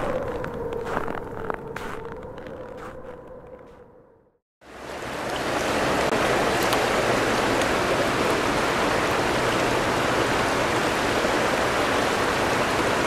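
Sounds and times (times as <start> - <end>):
river water rushing over rocks: 4.7 - 13.0.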